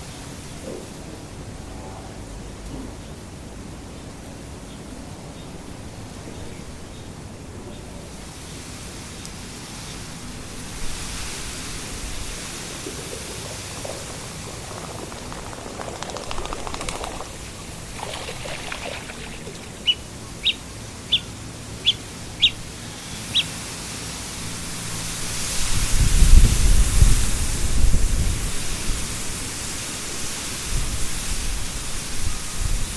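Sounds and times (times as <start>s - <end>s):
wind rustling through reeds: 8.1s - 32.9s
wind gust buffeting microphone: 10.6s - 19.9s
bird chirping: 12.0s - 22.6s.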